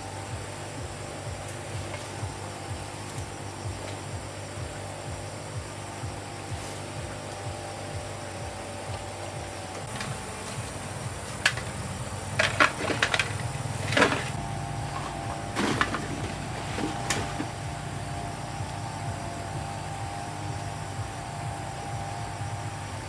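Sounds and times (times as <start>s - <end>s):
low machine hum: 0.0s - 23.0s
knocks and clatters: 8.9s - 17.8s.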